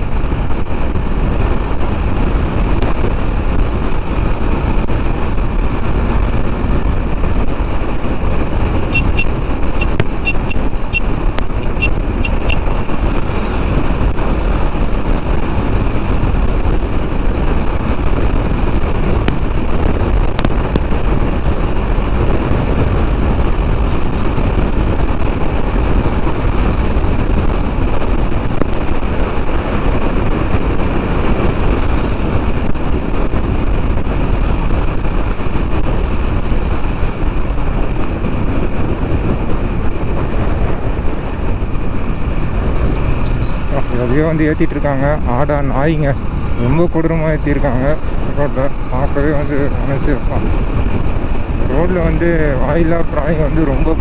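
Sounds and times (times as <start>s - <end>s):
motorcycle engine: 0.0s - 54.0s
road noise: 0.0s - 54.0s
wind rush on microphone: 0.0s - 54.0s
short high beeps: 8.9s - 13.0s.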